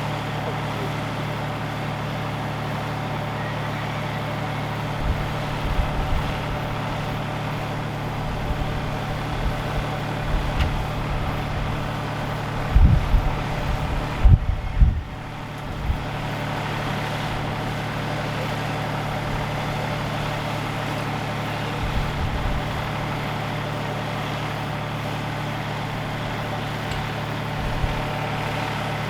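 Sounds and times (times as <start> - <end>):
tractor engine running: 0.0 - 29.0
low rumbles and knocks: 9.3 - 11.8.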